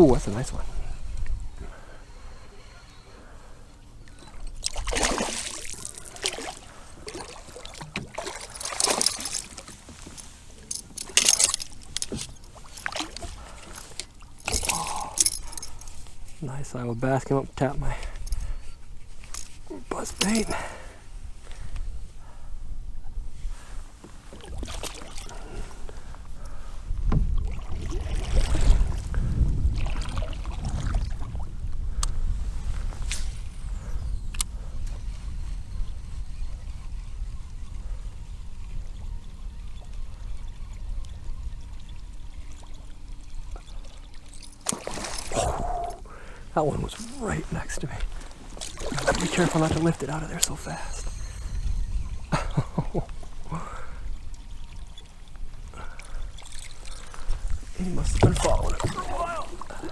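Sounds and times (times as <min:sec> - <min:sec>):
water sloshing and splashing: 0:04.1 - 0:16.4, 0:24.0 - 0:31.5, 0:41.6 - 0:51.0, 0:52.5 - 0:59.9
water trickling: 0:37.4 - 0:59.9
fish splashing at water surface: 0:44.4 - 0:45.4.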